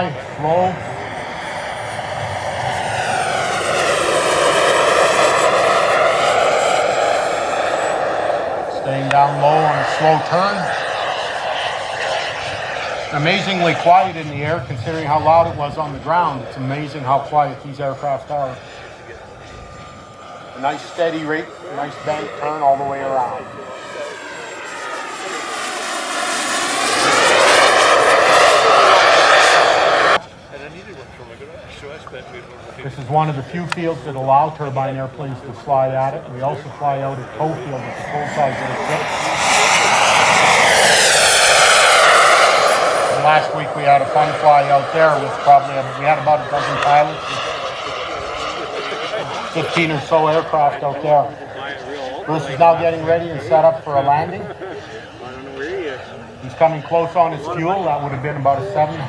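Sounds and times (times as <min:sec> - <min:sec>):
thin high turbine whistle: 0:00.0 - 0:14.3, 0:16.0 - 0:30.3, 0:37.0 - 0:50.0
jet turbine roar: 0:00.0 - 0:59.0.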